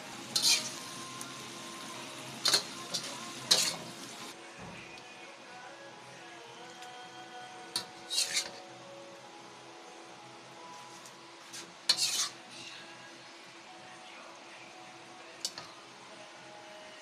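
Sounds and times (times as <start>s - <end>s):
faint background music: 0.0s - 17.0s
utensil scraping a dish: 8.1s - 8.6s, 11.9s - 12.4s
short sharp scrape: 11.6s - 12.3s.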